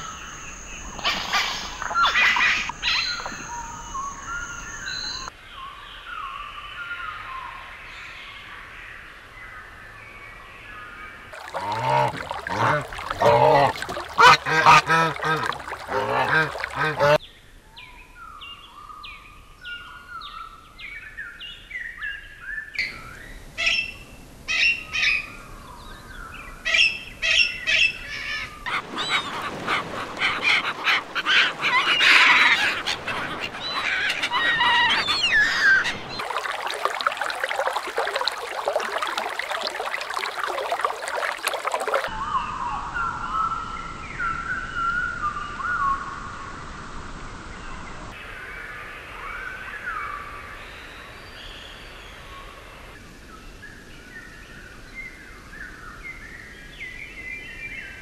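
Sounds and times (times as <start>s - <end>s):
whistled bird notes: 0.0s - 6.4s
loud low bird calls: 11.4s - 17.2s.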